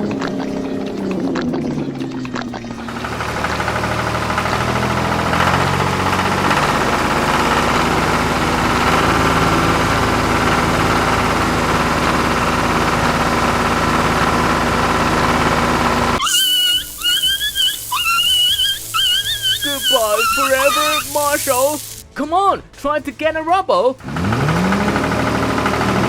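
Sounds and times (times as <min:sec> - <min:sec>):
vehicle engine running: 0:00.0 - 0:16.2, 0:24.0 - 0:26.0.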